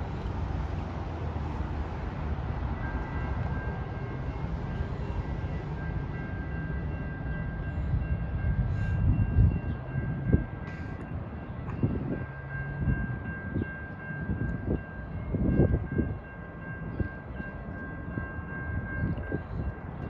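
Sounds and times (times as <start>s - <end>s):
distant train rumble: 0.0s - 20.0s
wind buffeting microphone: 4.4s - 20.0s.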